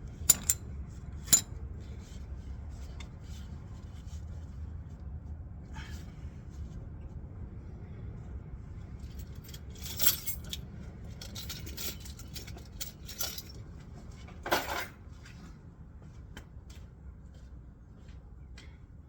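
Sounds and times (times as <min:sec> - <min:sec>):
metal clanks: 0:00.3 - 0:00.6
metal tools clinking: 0:00.3 - 0:00.6, 0:09.6 - 0:10.6, 0:11.2 - 0:13.6.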